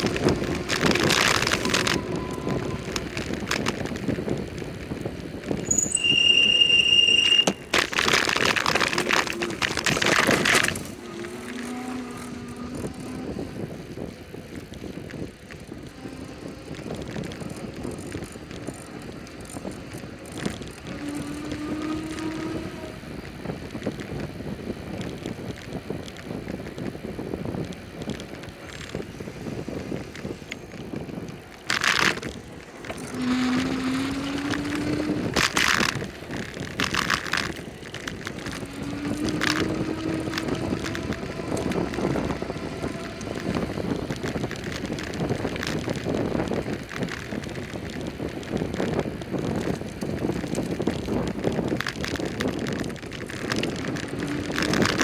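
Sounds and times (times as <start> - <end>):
road noise: 0.0 - 55.0
wind on microphone: 0.0 - 55.0.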